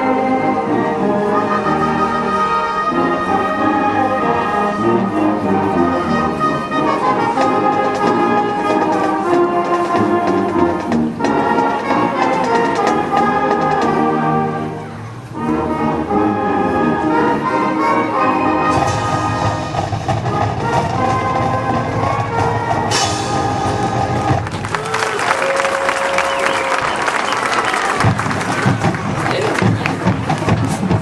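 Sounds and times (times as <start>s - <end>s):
marching band playing: 0.0s - 31.0s
sharp percussion hits: 18.7s - 24.7s.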